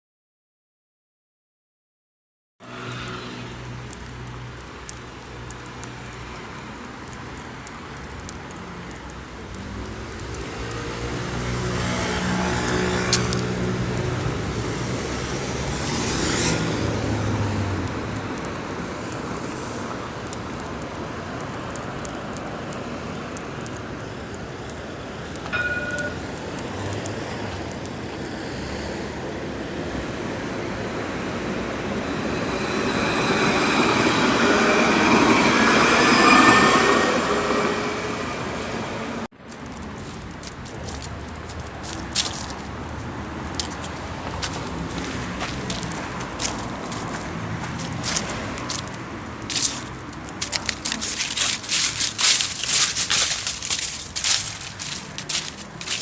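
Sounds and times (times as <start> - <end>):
vehicle passing close by: 2.6 - 4.6, 9.5 - 18.4, 41.9 - 56.0
hum of cars: 2.6 - 56.0
small clicks: 3.8 - 10.8.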